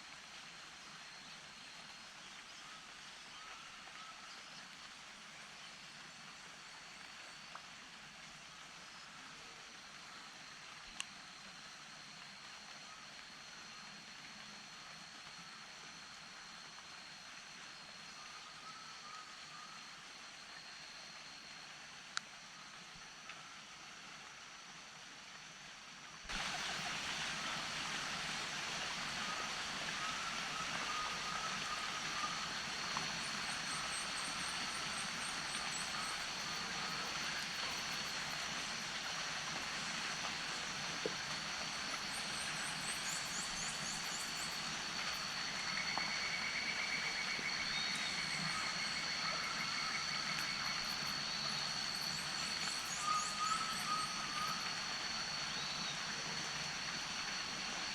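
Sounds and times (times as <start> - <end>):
steady hiss: 0.0 - 57.9
insects high-pitched tones: 26.4 - 57.9.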